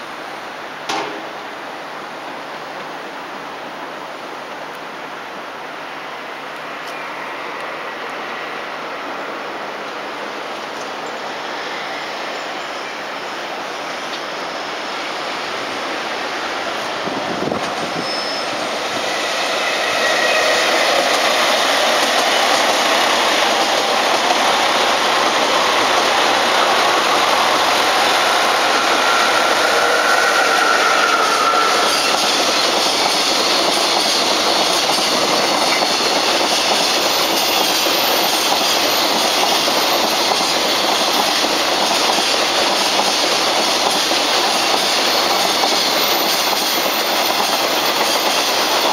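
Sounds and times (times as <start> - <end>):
electric train running past: 0.0 - 48.9
wheels clacking over rail joints: 0.9 - 1.4, 17.4 - 48.9
train wheel squeal: 6.8 - 9.2, 10.6 - 15.2, 17.4 - 23.9, 26.8 - 48.9.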